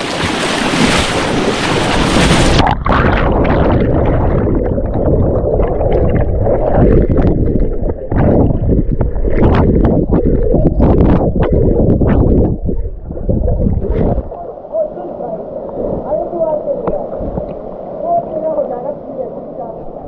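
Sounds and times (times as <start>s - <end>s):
water splashing rush: 0.0s - 19.8s
muffled waterfall churning: 0.0s - 20.0s
low rumble with knocks: 2.2s - 14.3s.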